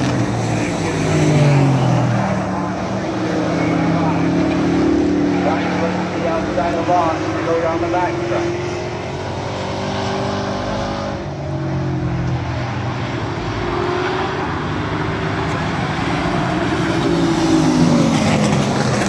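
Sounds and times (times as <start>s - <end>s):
race truck engines passing: 0.0s - 19.0s.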